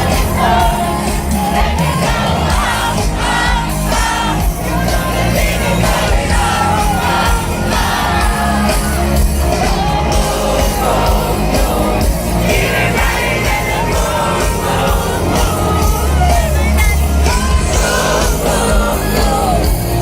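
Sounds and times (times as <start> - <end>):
band with heavy bass: 0.0 - 20.0
crowd shouting and singing: 0.0 - 20.0
female singer: 10.4 - 20.0.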